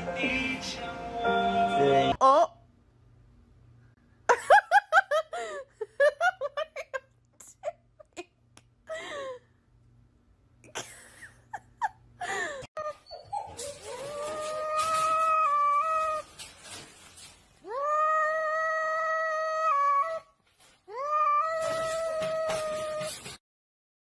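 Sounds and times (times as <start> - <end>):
person laughing: 4.3 - 8.3, 10.7 - 12.7
cat yowling: 17.7 - 20.3, 20.9 - 23.1.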